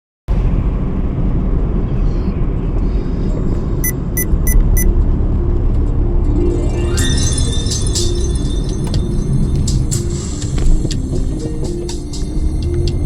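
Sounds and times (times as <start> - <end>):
vehicle rumble in motion: 0.3 - 6.7
quick electronic beeps: 3.8 - 4.9.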